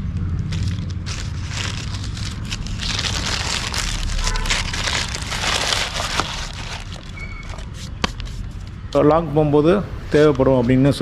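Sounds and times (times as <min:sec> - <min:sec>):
low rumble: 0:00.0 - 0:07.2
rustling and crinkling handling noise: 0:00.2 - 0:09.0.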